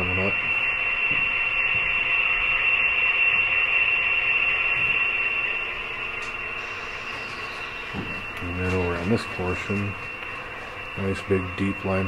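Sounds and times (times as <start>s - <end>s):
high-pitched whine: 0.0s - 12.0s
steady hiss: 0.0s - 12.0s.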